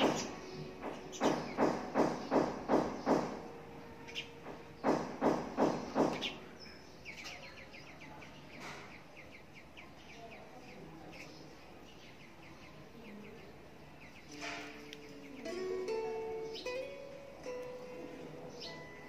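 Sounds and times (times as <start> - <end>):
short knocks: 0.0 - 3.5, 4.4 - 6.4
bird chirping: 0.0 - 19.0
faint background noise: 0.0 - 19.0.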